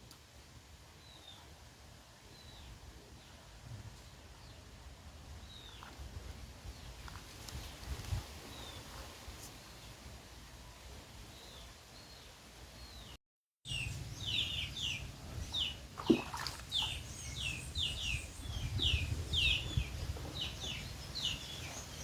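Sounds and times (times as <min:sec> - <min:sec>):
bird chirping: 0:11.3 - 0:22.0.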